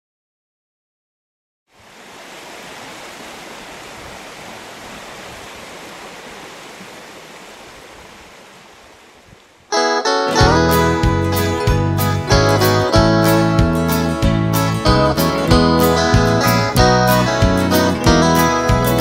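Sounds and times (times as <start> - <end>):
rushing water: 1.7 - 9.9.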